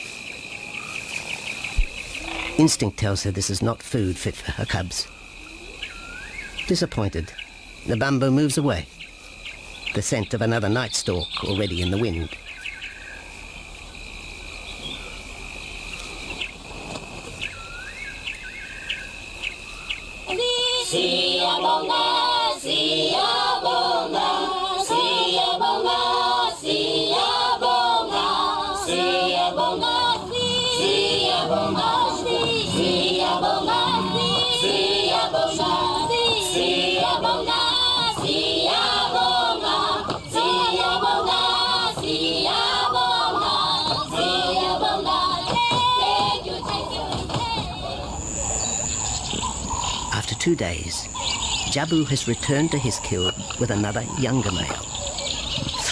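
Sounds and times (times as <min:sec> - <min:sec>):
high insect drone: 0:00.0 - 0:55.9
bird chirps: 0:00.2 - 0:02.7, 0:04.5 - 0:16.6, 0:17.3 - 0:20.2, 0:48.1 - 0:55.9
choir singing unaccompanied: 0:20.2 - 0:50.1.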